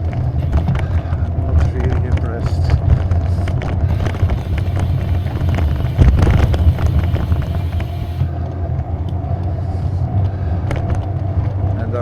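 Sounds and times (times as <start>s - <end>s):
rattles: 0.0s - 8.4s
vehicle rumbling on rough road: 0.0s - 12.0s
wind hiss on microphone: 3.9s - 8.3s.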